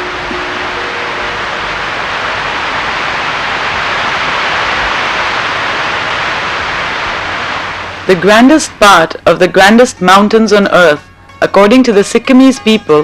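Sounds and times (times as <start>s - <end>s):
soft music: 0.0s - 2.2s, 8.0s - 13.0s
steady rushing noise: 0.0s - 9.2s.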